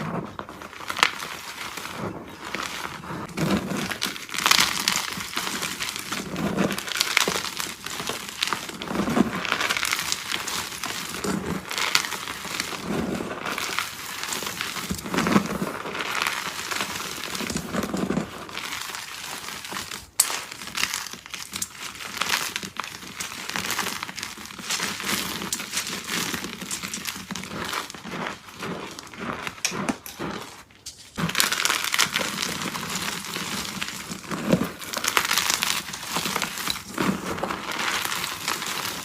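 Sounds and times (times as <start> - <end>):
chalk crunching and crumbling: 0.0 - 39.0.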